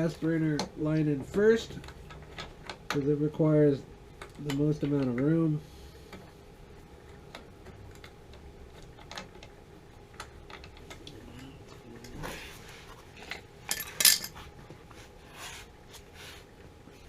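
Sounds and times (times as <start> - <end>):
metal tools clinking: 13.2 - 14.4
metallic clatter: 13.2 - 14.4.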